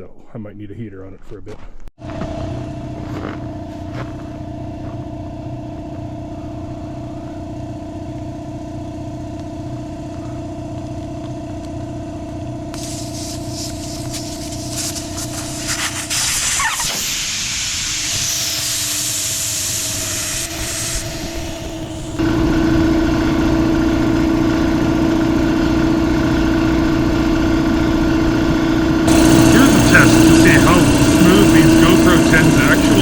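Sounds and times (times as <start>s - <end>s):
machine humming: 2.0s - 33.0s
compressed air hissing: 12.7s - 22.2s, 29.1s - 33.0s.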